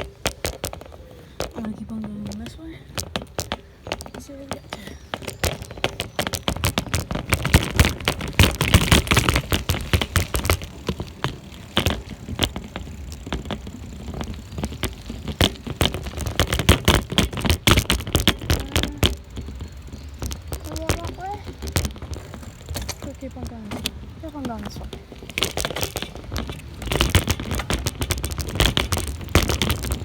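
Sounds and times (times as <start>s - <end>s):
bicycle rattling over rough ground: 0.0s - 30.0s.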